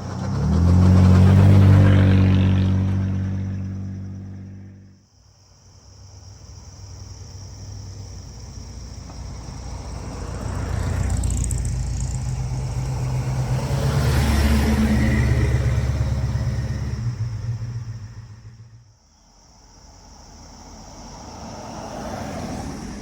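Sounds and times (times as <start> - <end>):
car engine rumbling past: 0.0 - 5.0, 7.6 - 19.0.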